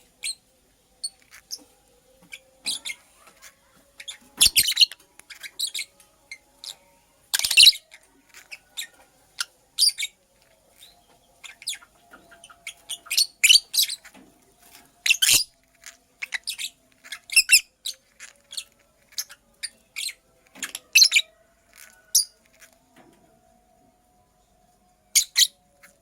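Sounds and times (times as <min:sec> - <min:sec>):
lovebird chirping: 0:02.3 - 0:14.2, 0:15.0 - 0:22.4, 0:25.1 - 0:26.0.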